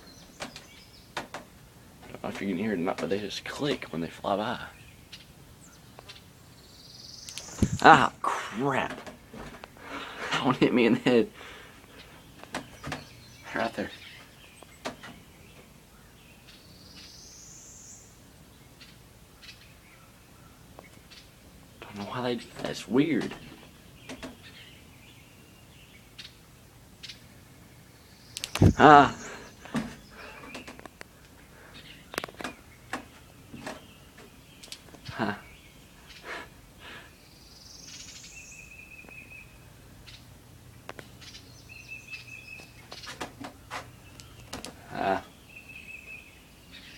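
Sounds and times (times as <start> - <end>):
small birds calling: 0.0 - 46.9
sharp bird clicks: 0.2 - 1.5, 5.9 - 6.3, 7.2 - 7.8, 22.6 - 24.6, 28.3 - 35.2, 38.9 - 39.4, 42.1 - 44.8
short clicks: 28.4 - 28.8.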